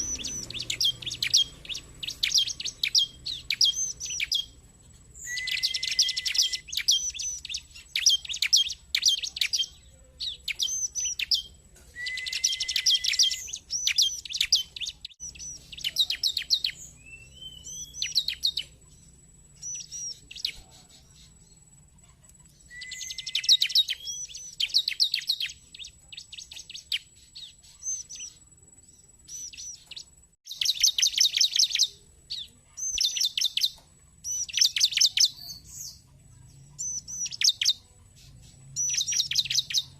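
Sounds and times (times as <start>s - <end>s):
rising bird whistle: 0.0s - 4.6s, 5.2s - 9.7s, 10.5s - 18.7s, 22.7s - 25.9s, 38.8s - 39.9s
bird trilling and chirping: 0.0s - 39.9s.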